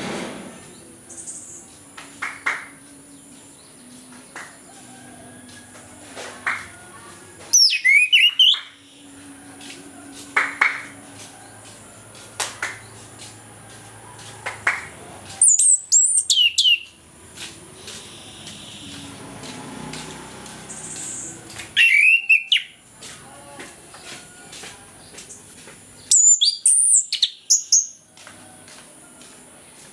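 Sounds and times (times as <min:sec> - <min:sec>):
thrush singing: 0:00.0 - 0:27.8.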